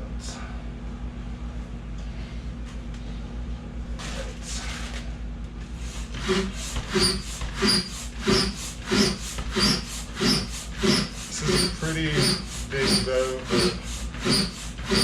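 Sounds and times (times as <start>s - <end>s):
hand air pump strokes: 5.8s - 15.0s.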